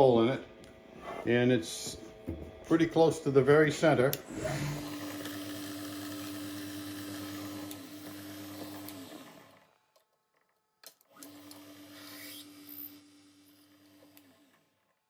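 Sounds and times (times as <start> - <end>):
drill motor drilling brass: 4.2 - 9.7, 11.2 - 14.8.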